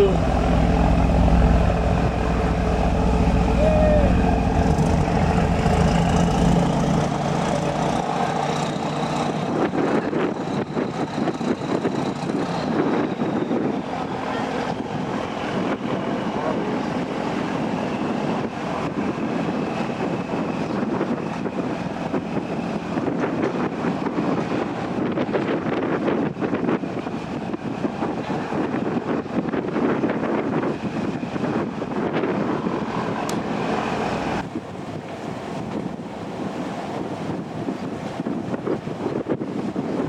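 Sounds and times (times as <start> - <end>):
deep engine hum: 0.0 - 11.4, 32.4 - 34.6
ferry engine drone: 0.0 - 25.0, 30.7 - 40.0
wind buffeting microphone: 0.0 - 40.0.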